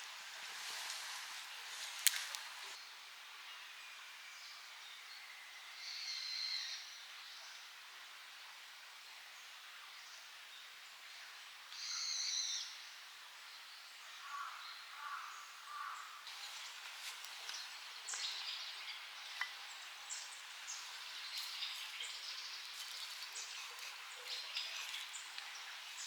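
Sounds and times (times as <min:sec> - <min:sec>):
light scattered ticks and crackles: 0:00.0 - 0:02.8, 0:16.3 - 0:26.0
wild birds calling: 0:14.2 - 0:26.0.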